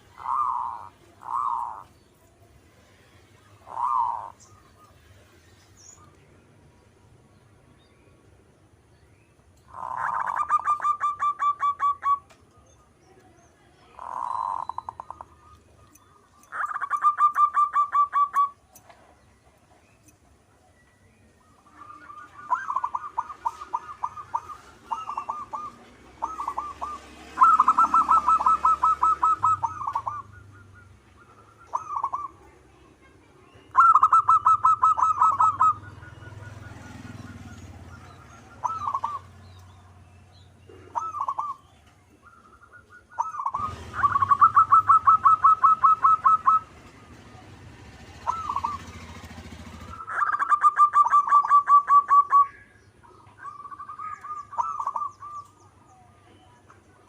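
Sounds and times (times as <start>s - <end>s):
dove cooing: 0.0s - 2.0s, 3.0s - 5.2s, 9.7s - 12.4s, 13.9s - 15.6s, 16.5s - 18.6s, 21.4s - 32.7s, 33.7s - 39.9s, 40.6s - 56.4s.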